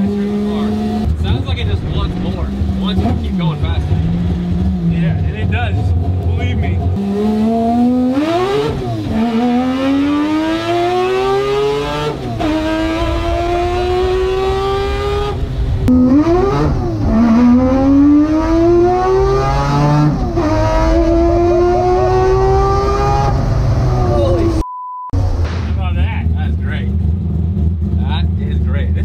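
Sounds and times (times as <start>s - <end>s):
car engine accelerating hard: 0.0s - 24.6s.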